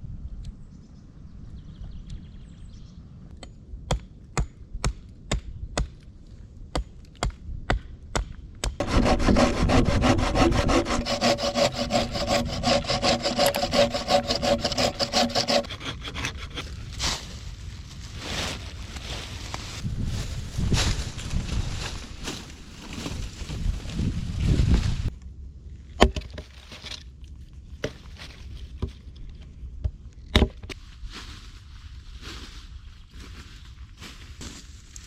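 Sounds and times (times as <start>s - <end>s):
hand saw cutting wood: 8.8s - 16.7s.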